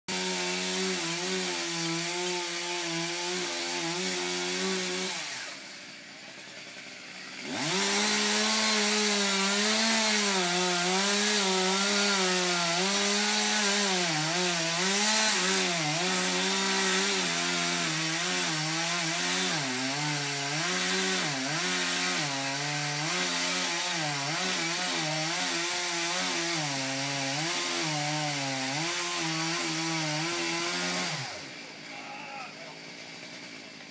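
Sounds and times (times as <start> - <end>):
chainsaw cutting wood: 0.1 - 33.9.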